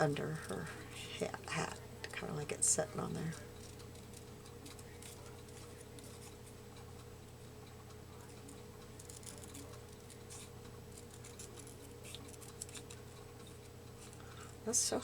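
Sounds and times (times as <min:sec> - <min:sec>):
low electrical hum: 0:00.0 - 0:15.0
scissors cutting paper: 0:08.4 - 0:14.2.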